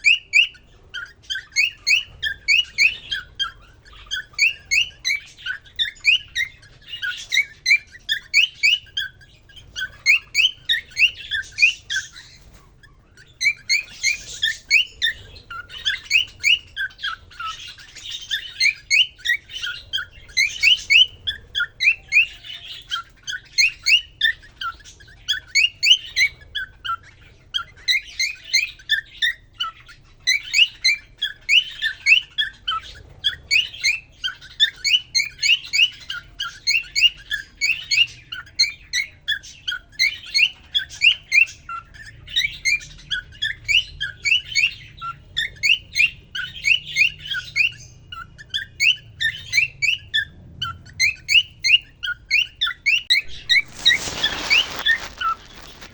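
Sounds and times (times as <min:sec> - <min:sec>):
cockatiel chirping and warbling: 0:00.0 - 0:55.9.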